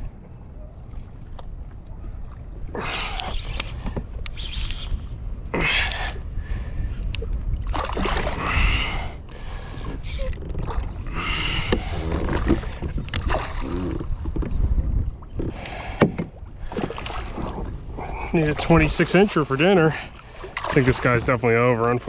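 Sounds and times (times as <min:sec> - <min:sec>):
wind rumble on microphone: 0:00.0 - 0:19.3
water splashing against kayak: 0:07.1 - 0:22.0.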